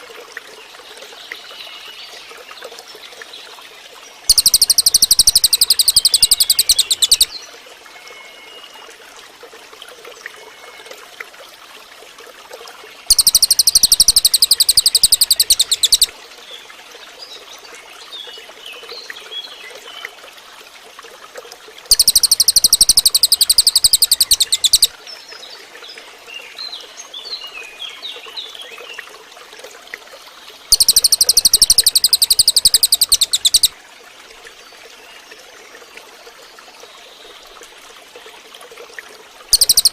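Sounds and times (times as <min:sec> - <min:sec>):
trickling stream: 0:00.0 - 0:39.9
bird rapid high-pitched trill: 0:04.3 - 0:07.3, 0:13.1 - 0:16.1, 0:21.9 - 0:24.9, 0:30.7 - 0:33.7, 0:39.5 - 0:39.9
faint bird chirps: 0:04.3 - 0:07.3, 0:13.1 - 0:16.1, 0:21.9 - 0:24.9, 0:30.7 - 0:33.7, 0:39.5 - 0:39.9.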